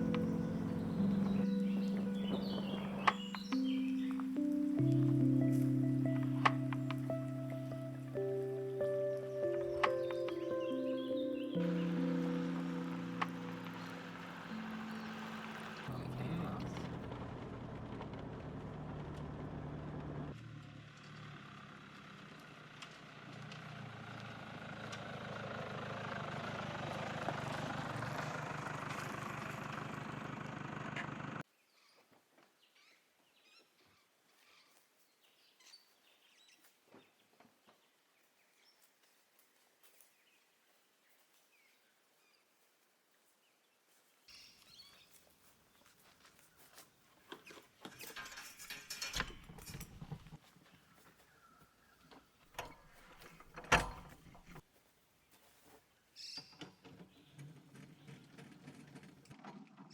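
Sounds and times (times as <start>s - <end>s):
vehicle engine and road noise: 0.0s - 31.4s
knocks and rattles of handling: 47.3s - 50.4s, 56.6s - 59.9s.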